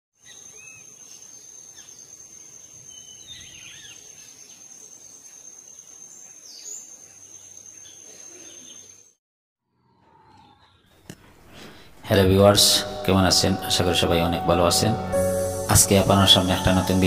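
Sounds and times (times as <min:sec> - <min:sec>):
bird chirps: 0:00.2 - 0:09.2.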